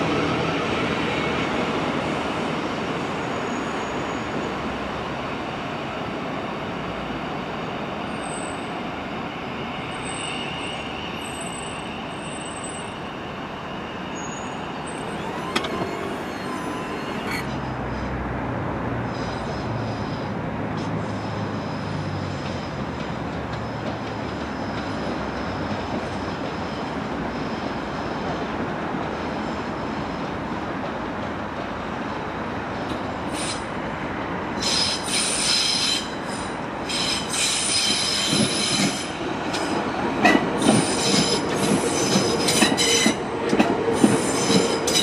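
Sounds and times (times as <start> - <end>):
train rumble on rails: 0.0 - 45.0
faint high whistling: 9.4 - 17.4.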